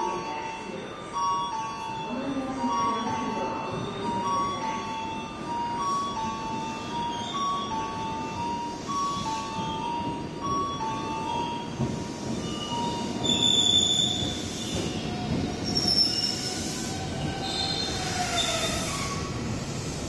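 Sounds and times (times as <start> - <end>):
train braking to a stop: 0.0 - 20.0
high-pitched brake squealing: 12.2 - 19.4.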